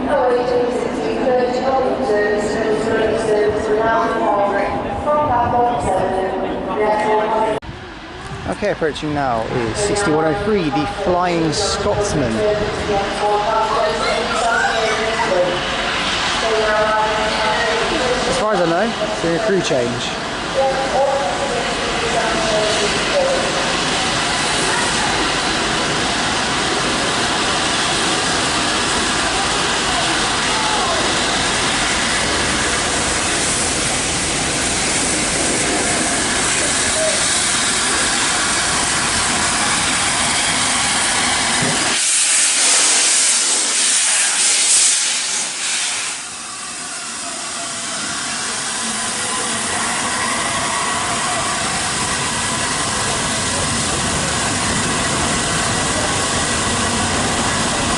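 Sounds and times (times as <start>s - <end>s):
steam locomotive hissing: 7.8s - 57.9s.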